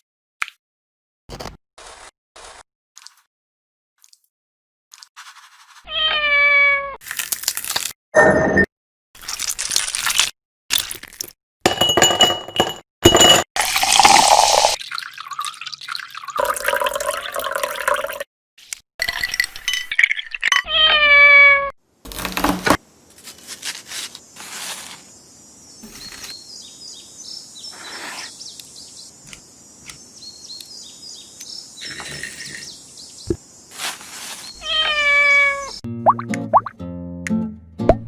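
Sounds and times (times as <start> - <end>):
cat meowing: 5.9 - 7.0, 20.7 - 21.7, 34.6 - 35.8.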